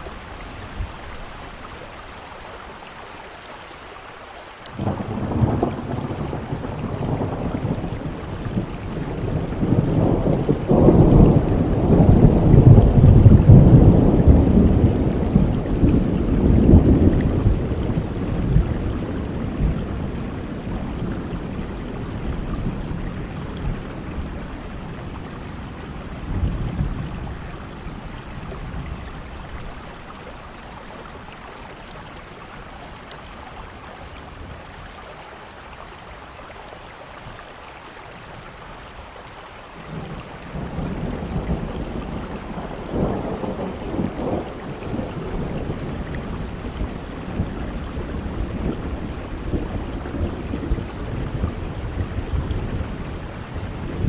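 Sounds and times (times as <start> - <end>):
steady rain: 0.0 - 54.0
rolling thunder: 4.8 - 30.4, 39.9 - 54.0.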